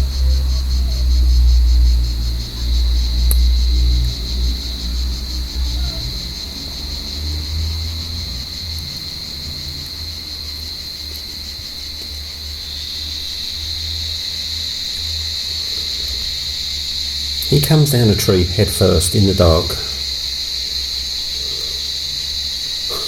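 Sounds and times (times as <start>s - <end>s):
cicadas buzzing: 0.0s - 23.0s.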